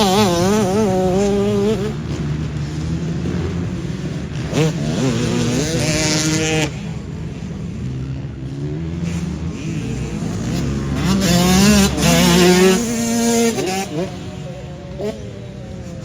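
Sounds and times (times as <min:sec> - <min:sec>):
dirt bike engines running: 0:00.0 - 0:16.0
dirt bike revving: 0:00.0 - 0:16.0.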